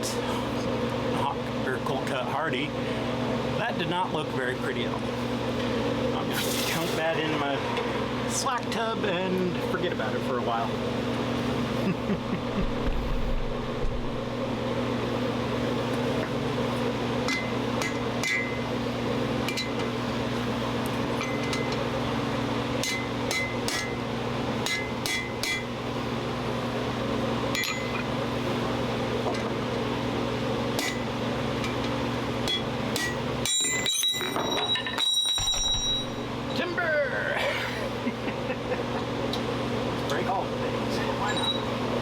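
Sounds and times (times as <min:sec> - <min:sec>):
forge mechanical hum: 0:00.0 - 0:42.0
ringing metal clink: 0:32.5 - 0:36.3.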